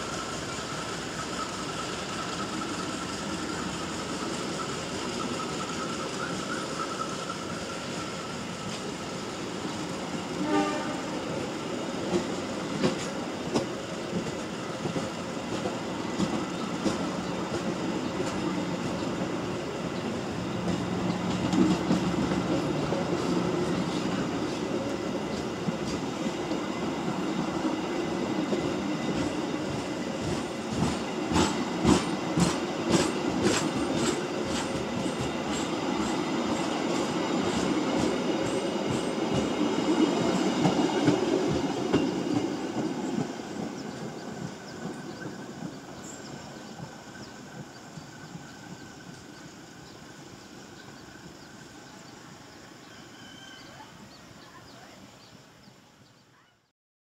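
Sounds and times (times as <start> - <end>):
train coaches rumbling past: 0.0 - 56.5
wheels clacking over rail joints: 28.4 - 49.5.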